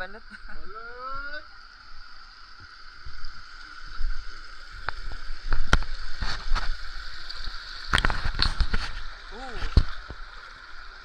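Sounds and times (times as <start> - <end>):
river water running: 0.0 - 11.0
water splashes and knocks: 4.8 - 10.5.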